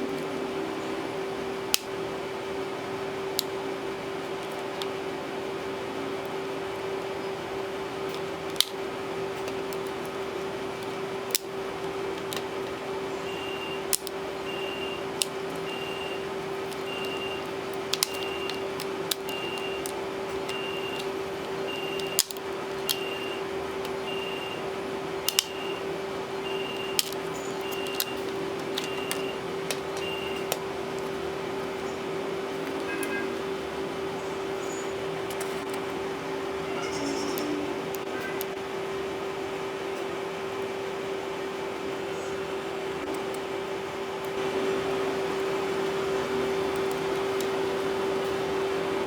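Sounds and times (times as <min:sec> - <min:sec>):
steady hum: 0:00.0 - 0:49.0
tools clicking and snapping: 0:08.1 - 0:08.8, 0:10.8 - 0:12.8, 0:13.9 - 0:14.2, 0:16.6 - 0:21.2, 0:21.9 - 0:23.1, 0:25.3 - 0:25.6, 0:26.8 - 0:31.2.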